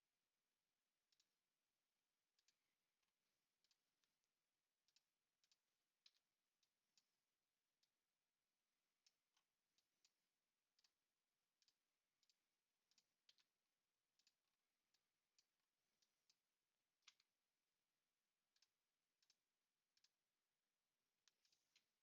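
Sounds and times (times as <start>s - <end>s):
faint computer mouse clicks: 4.9s - 7.1s, 10.8s - 11.0s, 11.6s - 13.6s, 17.0s - 17.4s, 21.2s - 22.0s.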